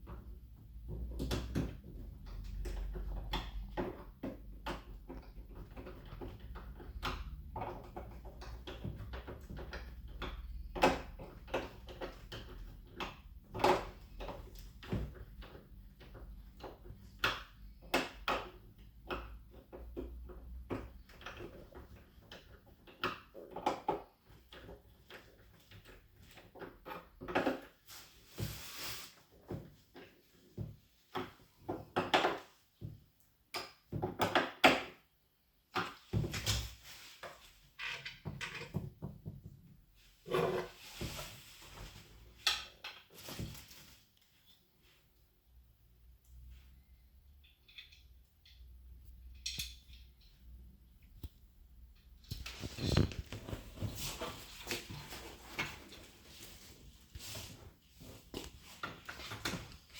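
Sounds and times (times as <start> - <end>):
cardboard box knocks and scrapes: 52.5 - 59.0.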